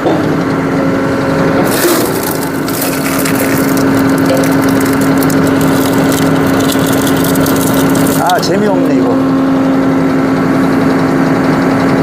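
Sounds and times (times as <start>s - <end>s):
tractor engine running: 0.8s - 12.0s
log splitting crackling and snapping: 1.7s - 8.4s.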